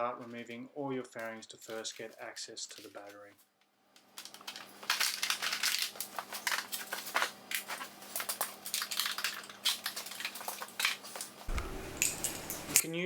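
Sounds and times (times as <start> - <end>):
plastic panels clicking and crackling: 4.0 - 12.8
low thump: 11.5 - 11.9.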